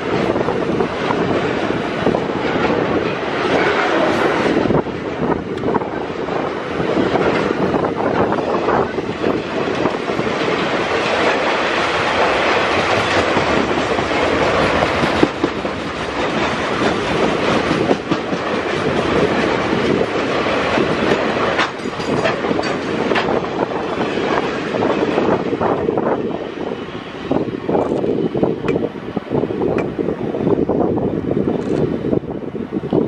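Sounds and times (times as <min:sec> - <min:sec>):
wheels clacking over rail joints: 0:00.0 - 0:26.0
steel wheels rumbling on rail: 0:00.0 - 0:33.0.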